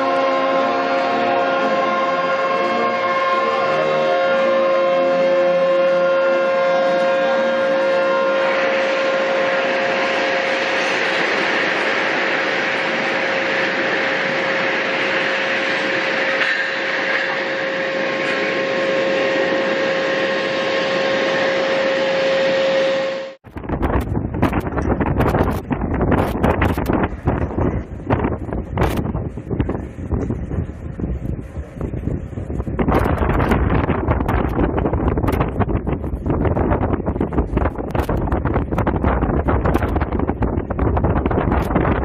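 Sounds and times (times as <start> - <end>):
loud steady warning tone: 0.0 - 23.4
wind buffeting microphone: 23.4 - 42.0
rushing background noise: 23.5 - 42.0.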